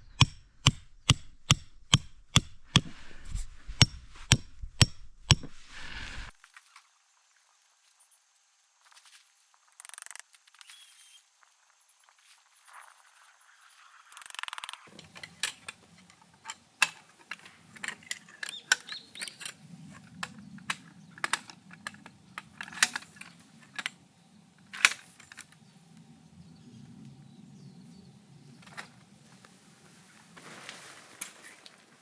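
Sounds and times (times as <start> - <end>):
tent poles clicking: 9.6 - 11.2, 14.0 - 14.9.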